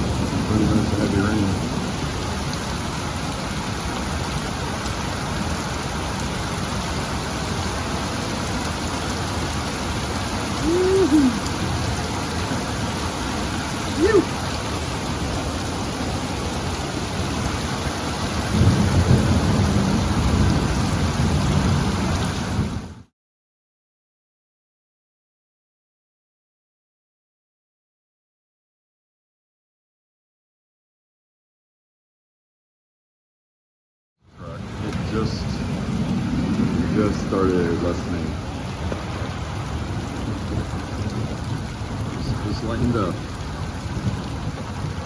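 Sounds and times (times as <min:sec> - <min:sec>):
heavy rain pouring: 0:00.0 - 0:23.1, 0:34.3 - 0:45.0.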